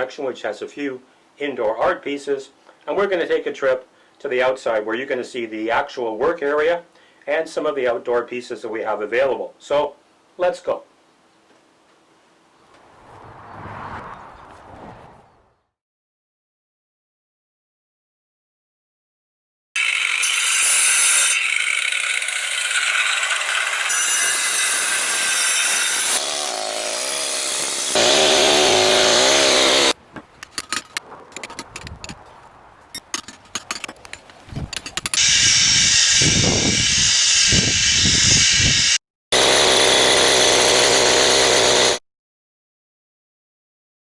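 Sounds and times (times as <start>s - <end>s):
stone grinding air tool noise: 19.8s - 32.2s, 32.9s - 42.0s.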